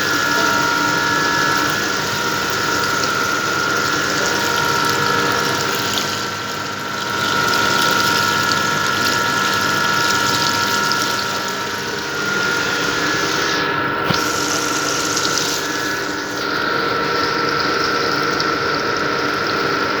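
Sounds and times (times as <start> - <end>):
small electric motor whining: 0.0 - 19.7
hiss: 12.2 - 16.4.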